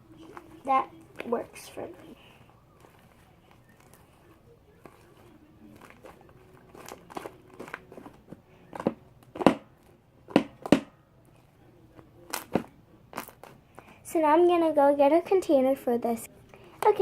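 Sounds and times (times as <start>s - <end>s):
squishy slime crackles and pops: 12.3s - 13.6s.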